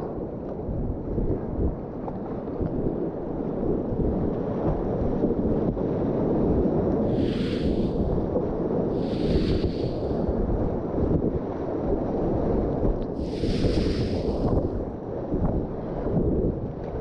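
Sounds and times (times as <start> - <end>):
wind buffeting microphone: 0.6 - 17.0
river rapids rushing: 9.0 - 10.1.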